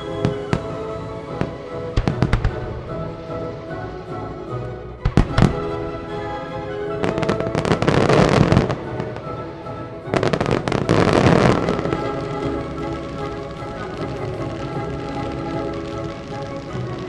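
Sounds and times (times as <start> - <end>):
fireworks pops and bursts: 0.0 - 3.0, 5.0 - 5.8, 10.1 - 17.0
music soundtrack: 0.0 - 17.0.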